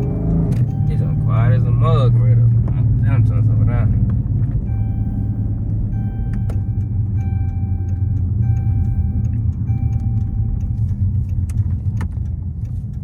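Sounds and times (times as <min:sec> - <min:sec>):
car engine rumbling: 0:00.0 - 0:13.0
steady tone: 0:04.6 - 0:11.1.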